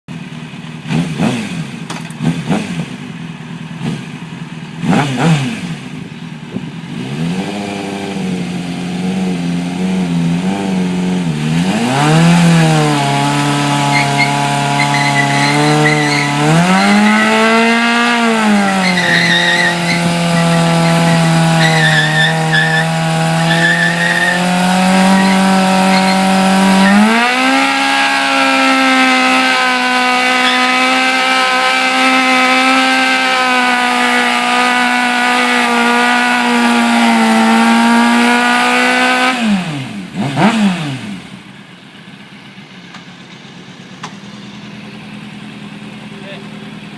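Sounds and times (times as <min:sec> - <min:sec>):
motorcycle engine revving: 0:00.1 - 0:46.9
tyre squeal: 0:13.7 - 0:27.3, 0:30.2 - 0:31.0.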